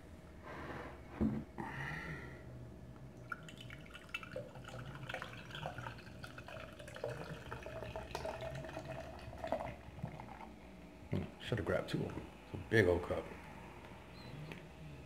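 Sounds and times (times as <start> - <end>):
soda fizzing in a cup: 3.2 - 10.6.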